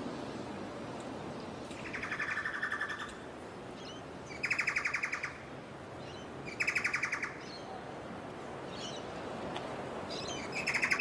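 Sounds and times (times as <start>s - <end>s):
steady background hiss: 0.0s - 11.0s
bird rapid trill: 1.8s - 3.1s.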